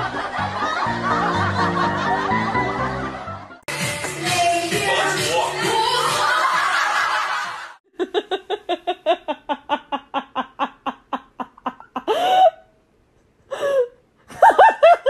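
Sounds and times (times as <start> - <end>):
person laughing: 7.9 - 12.6.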